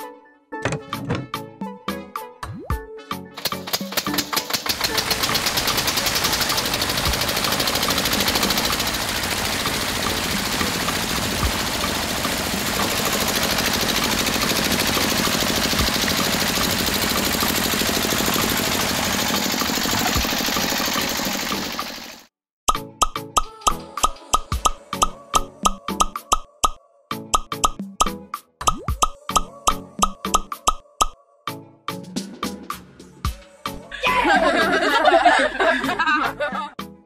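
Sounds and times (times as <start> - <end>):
small water pump rattling buzz: 3.4 - 22.3.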